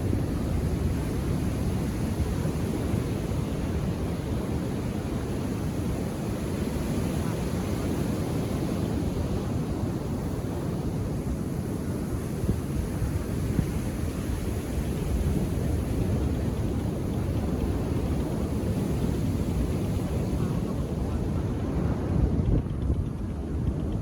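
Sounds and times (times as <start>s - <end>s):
ocean waves washing ashore: 0.0s - 24.0s.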